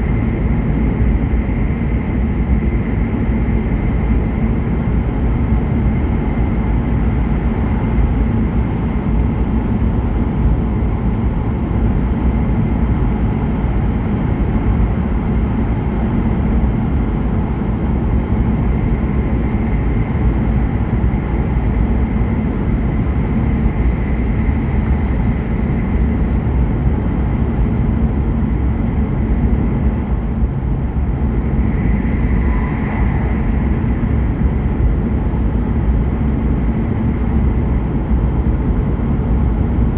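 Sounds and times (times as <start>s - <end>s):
train rumbling at speed: 0.0s - 39.9s
faint high whine: 30.7s - 36.8s.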